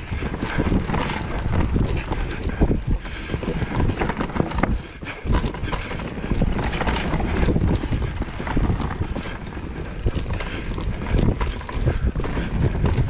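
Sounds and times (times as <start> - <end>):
bike knocks and rattles: 0.0 - 13.0
tyre rumble on rough trail: 0.0 - 13.0
wind buffeting microphone: 0.0 - 13.0.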